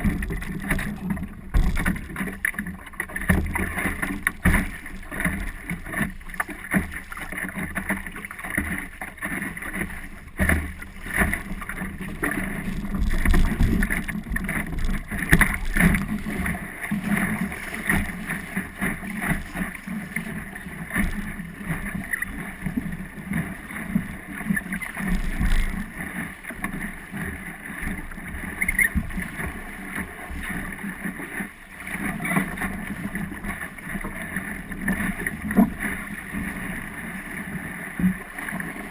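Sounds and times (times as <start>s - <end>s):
water splashing against hull: 0.0s - 38.9s
wind rumble on microphone: 11.4s - 18.4s.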